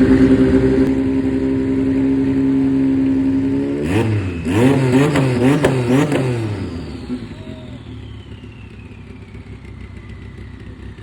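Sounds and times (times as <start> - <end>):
engine revving: 0.0 - 10.7
faint high whine: 6.8 - 9.6.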